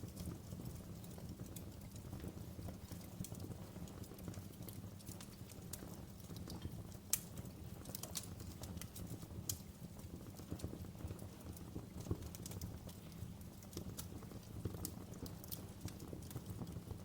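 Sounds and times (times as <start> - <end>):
low rumble of fire: 0.0 - 17.0
wood fire crackling: 0.0 - 17.0.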